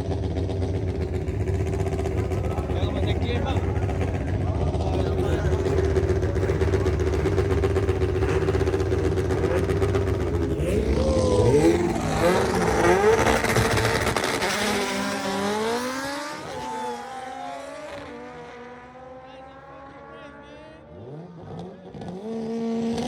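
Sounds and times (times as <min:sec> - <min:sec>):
race car engine revving: 0:00.0 - 0:23.0.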